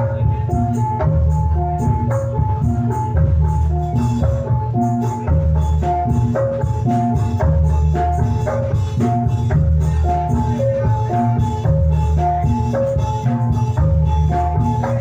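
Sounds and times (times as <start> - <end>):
drum strokes: 0.0 - 15.0
gamelan mallet melody: 0.0 - 15.0
heavy bass: 0.0 - 15.0.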